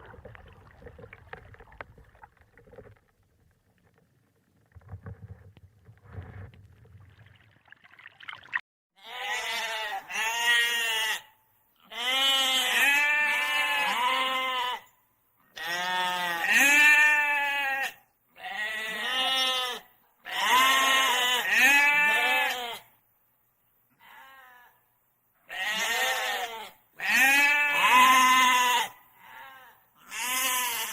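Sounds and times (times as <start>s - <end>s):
goat or sheep bleating: 9.0s - 14.9s, 15.5s - 22.9s, 24.0s - 24.8s, 25.5s - 30.9s.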